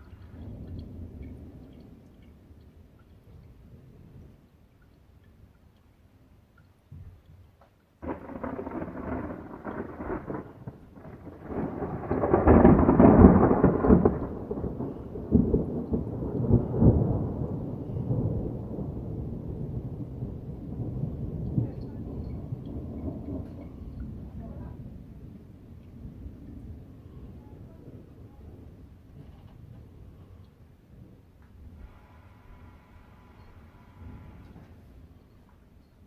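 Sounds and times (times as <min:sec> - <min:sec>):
thunder crack and rumble: 0:00.0 - 0:04.5, 0:08.0 - 0:32.0.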